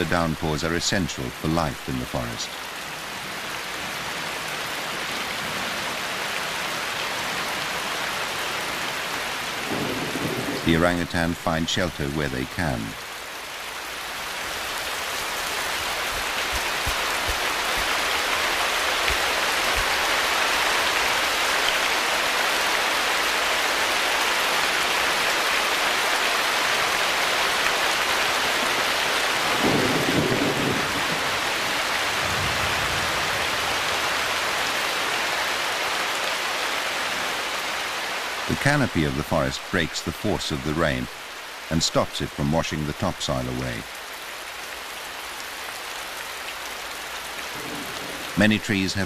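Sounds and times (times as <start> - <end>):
heavy rain pouring: 0.0 - 49.0
low rumble of thunder: 9.7 - 10.7, 29.5 - 31.4, 32.2 - 33.4, 47.6 - 48.3.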